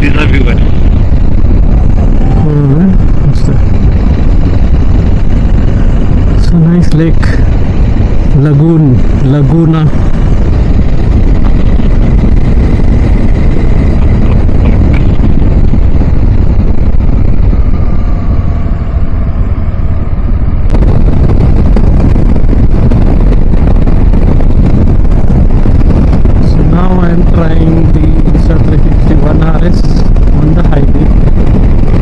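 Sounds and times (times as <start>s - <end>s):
motorcycle engine: 0.0s - 32.0s
road noise: 0.0s - 32.0s
wind rumbling on microphone: 0.0s - 32.0s.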